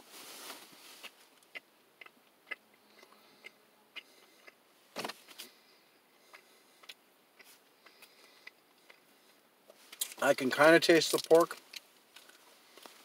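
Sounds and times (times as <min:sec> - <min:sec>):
chewing with mouth clicks: 0:00.9 - 0:04.6, 0:05.5 - 0:10.2.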